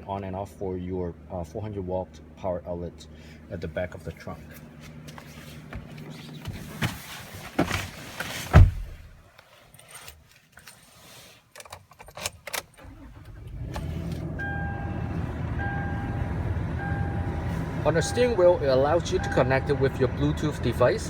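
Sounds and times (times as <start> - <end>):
heavy thump: 8.5 - 9.1
car engine starting and idling: 12.4 - 21.0
dashboard chime beeping: 14.4 - 15.0, 15.6 - 18.4, 19.0 - 19.8.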